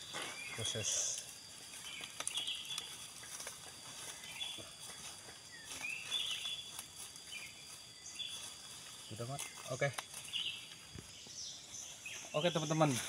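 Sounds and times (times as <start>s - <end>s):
leaves rustling and crackling: 0.0s - 13.0s
bird calling: 4.0s - 12.9s.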